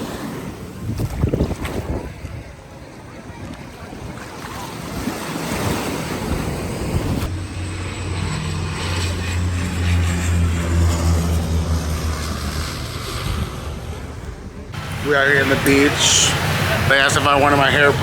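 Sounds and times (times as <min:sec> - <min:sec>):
wind buffeting microphone: 0:00.0 - 0:18.0
jet engines rushing: 0:05.2 - 0:18.0.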